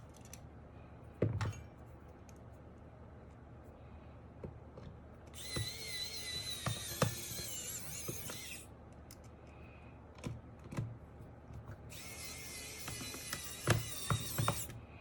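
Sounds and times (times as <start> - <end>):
electric screwdriver whirring: 5.4 - 8.6, 11.9 - 14.8.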